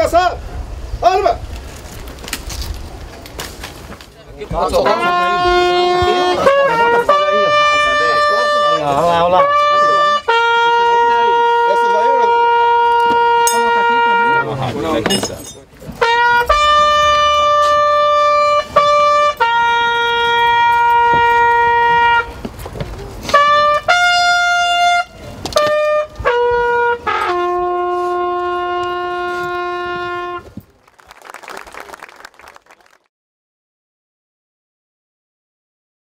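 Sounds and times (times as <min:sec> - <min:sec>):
bugle call: 0:04.8 - 0:14.6, 0:16.0 - 0:22.4, 0:23.2 - 0:33.0.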